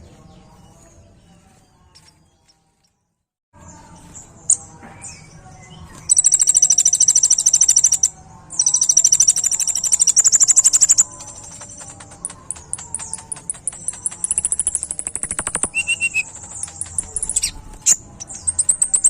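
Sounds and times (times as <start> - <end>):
bird chirps: 4.0 - 19.0
bird trilling: 6.1 - 19.0.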